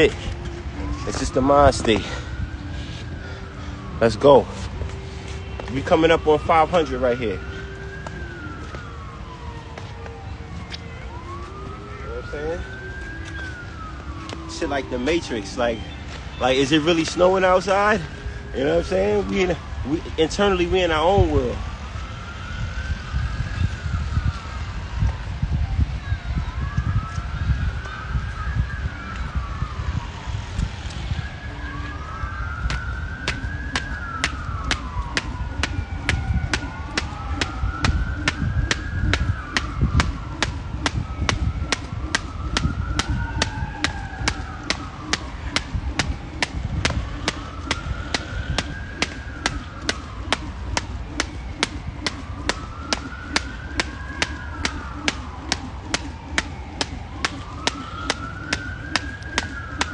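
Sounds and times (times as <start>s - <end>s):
distant siren wailing: 0.0s - 59.9s
jump rope slapping the ground: 32.7s - 59.9s.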